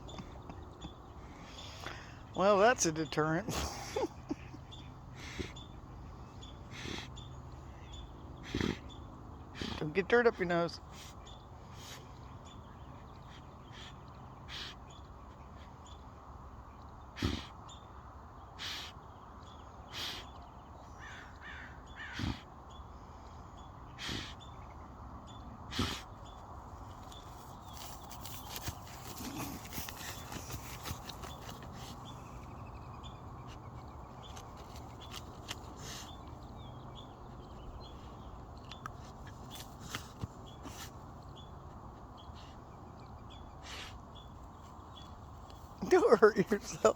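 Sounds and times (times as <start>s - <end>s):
dog snorting and snuffling: 8.4s - 8.9s, 9.5s - 9.8s, 17.1s - 17.6s, 22.1s - 22.5s, 23.9s - 24.4s, 25.6s - 26.2s, 26.8s - 37.3s, 37.9s - 41.7s.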